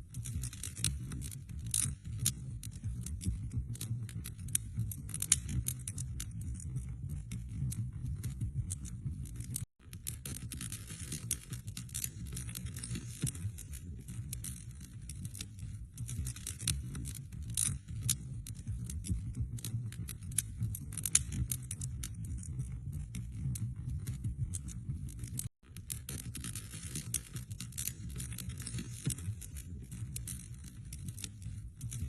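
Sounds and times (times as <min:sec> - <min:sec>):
wood fire crackling: 0:19.7 - 0:24.6.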